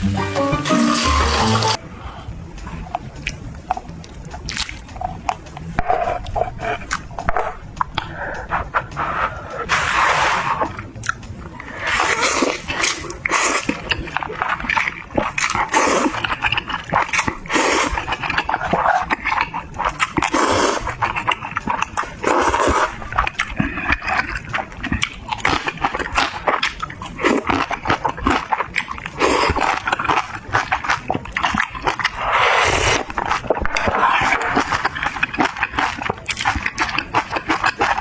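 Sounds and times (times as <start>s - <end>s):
chewing and crunching: 2.6s - 9.9s, 10.5s - 38.0s
wet mouth noises and slurps: 8.3s - 38.0s.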